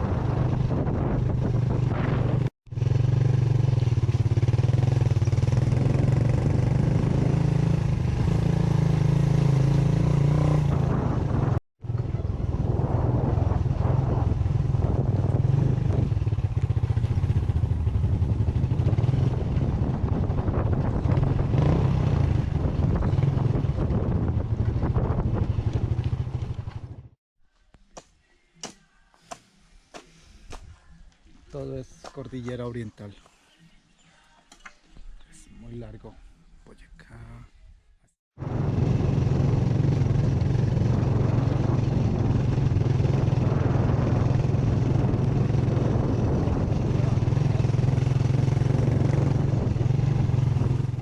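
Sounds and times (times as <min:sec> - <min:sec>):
motorcycle engine running: 0:00.0 - 0:27.2, 0:38.4 - 0:51.0.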